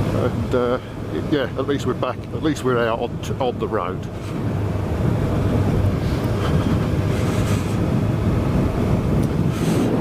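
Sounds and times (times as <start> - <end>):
wind rushing over microphone: 0.0 - 10.0
motorcycle engine running: 3.1 - 10.0.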